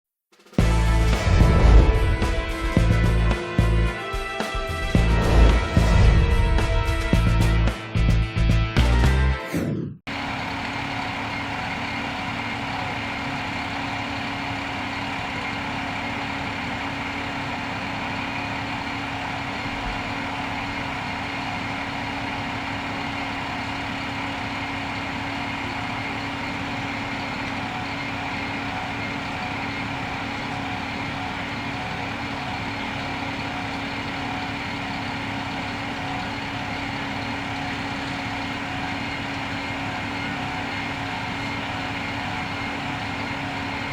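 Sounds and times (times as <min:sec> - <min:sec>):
vehicle engine idling: 0:00.6 - 0:08.2, 0:10.1 - 0:43.9.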